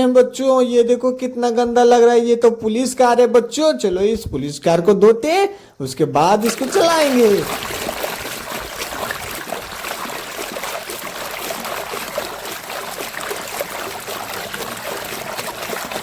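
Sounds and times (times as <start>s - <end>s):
water splashing and trickling: 6.4s - 16.0s.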